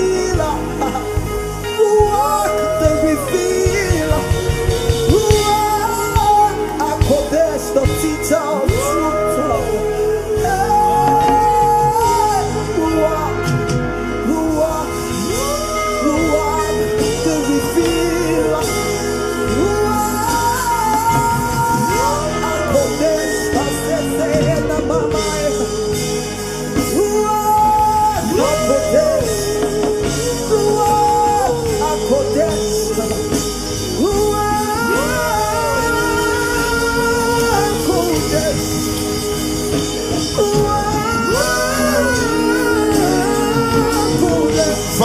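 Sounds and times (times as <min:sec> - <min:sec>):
instrumental backing: 0:00.0 - 0:45.0
person singing gospel song: 0:00.0 - 0:45.0.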